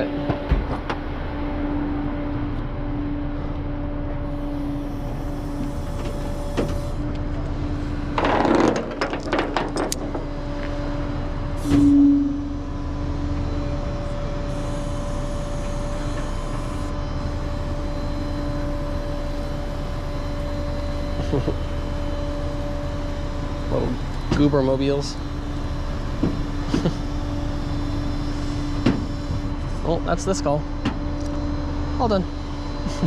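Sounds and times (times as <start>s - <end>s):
metallic clanks and rattles: 8.2s - 10.2s.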